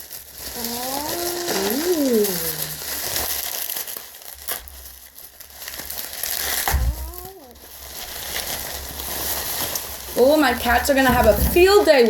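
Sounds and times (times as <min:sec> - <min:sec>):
plastic packaging crinkling: 0:00.0 - 0:12.0
brief voiced sound: 0:00.6 - 0:02.8, 0:06.7 - 0:07.6.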